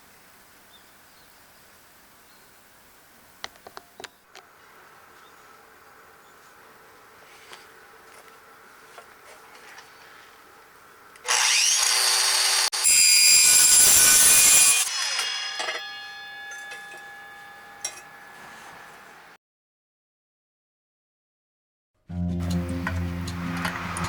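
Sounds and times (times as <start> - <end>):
power tool grinding metal: 11.2 - 19.3
metal ringing tones: 15.3 - 19.4.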